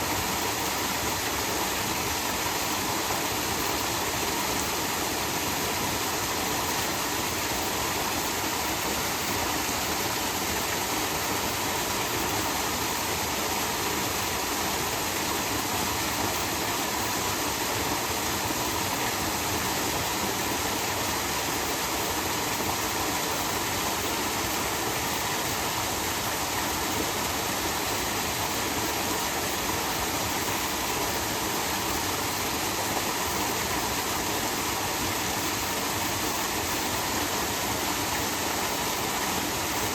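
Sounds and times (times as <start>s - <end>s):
waterfall rushing: 20.4s - 39.9s.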